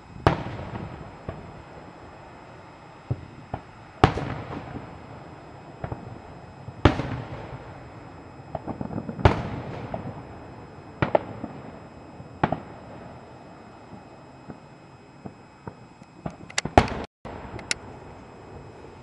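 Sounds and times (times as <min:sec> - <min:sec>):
firework booms: 0:00.0 - 0:02.2, 0:03.0 - 0:11.8, 0:12.4 - 0:13.2.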